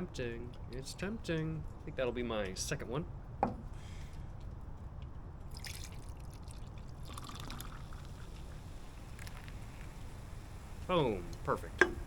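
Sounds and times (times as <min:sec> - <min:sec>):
drink pouring into cup: 0:05.5 - 0:12.0.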